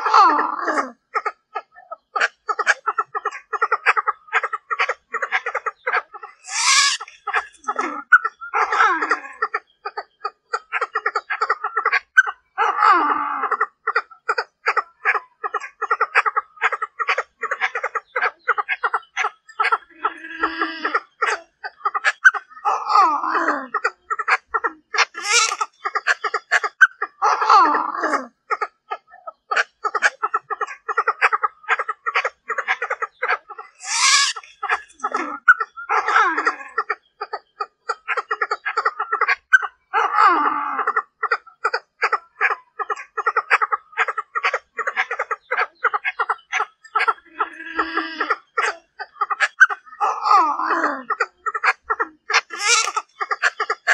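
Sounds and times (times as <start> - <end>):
bird clucking notes: 0.0 - 12.8, 13.4 - 53.9
bird harsh chattering call: 5.4 - 7.6, 25.0 - 26.2, 33.6 - 36.2, 51.6 - 53.9.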